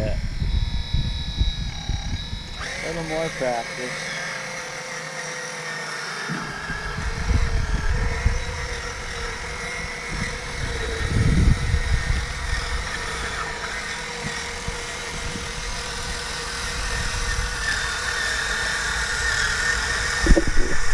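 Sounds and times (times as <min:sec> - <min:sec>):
motor and gear whine: 0:00.0 - 0:20.9
low rumbles: 0:19.9 - 0:20.9.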